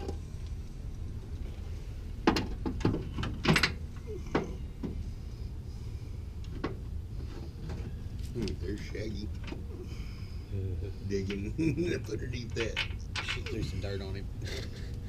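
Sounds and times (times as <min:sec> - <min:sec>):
steady low hum: 0:00.0 - 0:15.0
tools knocking and clattering: 0:02.2 - 0:05.0, 0:12.5 - 0:13.8.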